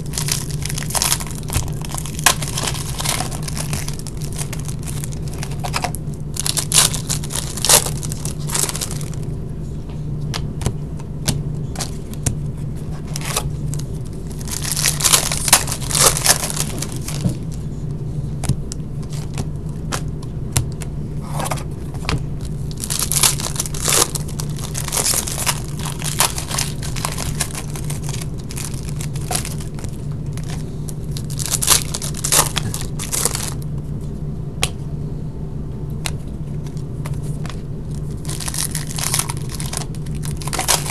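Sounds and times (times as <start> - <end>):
wrappers torn and crinkled: 0.0 - 9.3, 12.9 - 17.6, 22.4 - 33.6, 37.8 - 40.9
steady low hum: 0.0 - 40.9.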